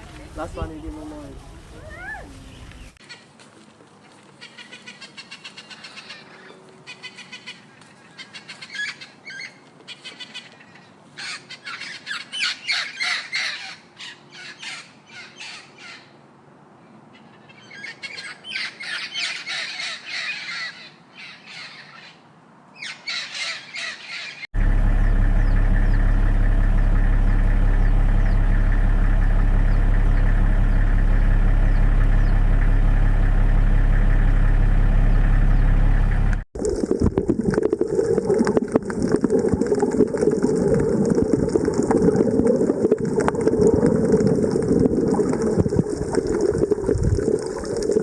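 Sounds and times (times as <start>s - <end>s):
birds calling rapidly: 0.0s - 3.4s, 4.3s - 16.2s, 17.1s - 36.4s.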